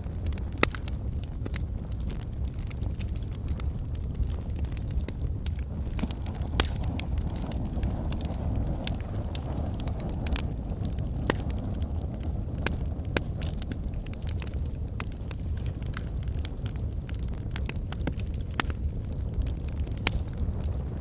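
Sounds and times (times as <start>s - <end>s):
fire crackling and popping: 0.0s - 21.0s
flames rumbling: 0.0s - 21.0s.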